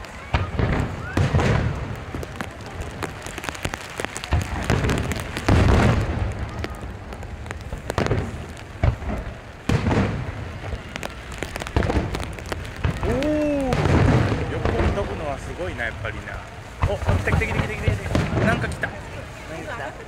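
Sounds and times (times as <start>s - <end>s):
fireworks booming: 0.0s - 20.0s
fireworks crackling and popping: 0.0s - 20.0s
wind and rain hiss: 0.0s - 20.0s.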